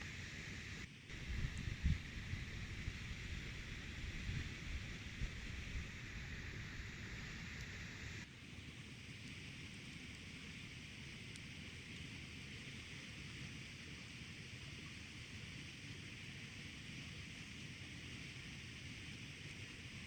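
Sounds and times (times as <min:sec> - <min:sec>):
steady hiss: 0:00.0 - 0:08.3
wind buffeting microphone: 0:01.1 - 0:06.3.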